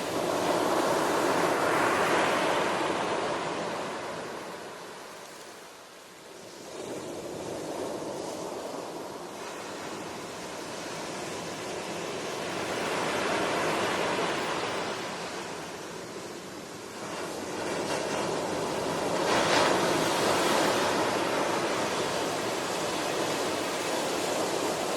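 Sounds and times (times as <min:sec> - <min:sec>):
ocean waves washing on shore: 0:00.0 - 0:24.9.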